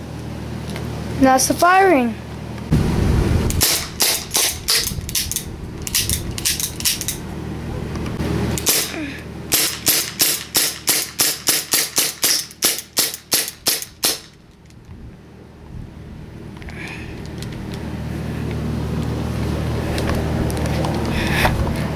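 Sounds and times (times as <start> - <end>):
steady low rumble: 0.0 - 21.9
airsoft gun shots: 3.6 - 5.3, 9.5 - 14.3.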